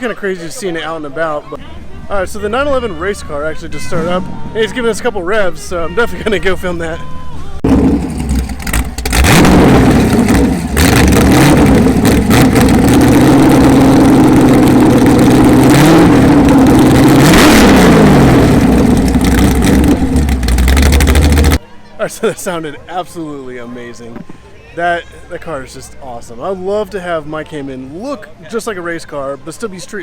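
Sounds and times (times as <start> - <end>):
race car engine revving: 7.6 - 21.6.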